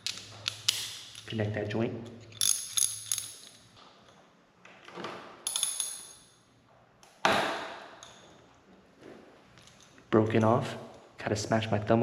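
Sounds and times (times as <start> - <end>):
socket wrench clinking on bolt: 2.3 - 3.6, 5.4 - 6.2.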